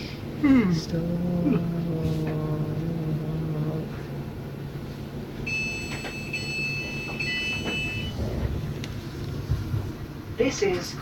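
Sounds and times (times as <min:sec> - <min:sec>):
train low hum: 0:00.0 - 0:11.0
door warning beeping: 0:05.4 - 0:08.6.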